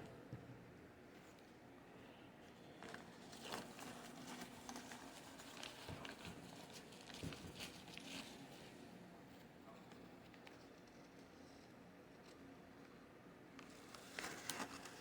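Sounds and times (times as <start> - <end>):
paper wrapper crinkling: 2.8 - 8.8, 13.7 - 15.0.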